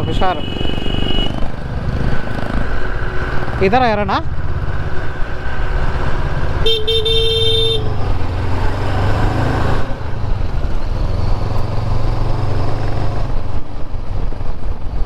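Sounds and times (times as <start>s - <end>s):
vehicle horn: 0.0s - 1.4s, 6.5s - 8.1s
motorcycle engine running: 0.0s - 15.0s
wind and road noise: 0.0s - 15.0s.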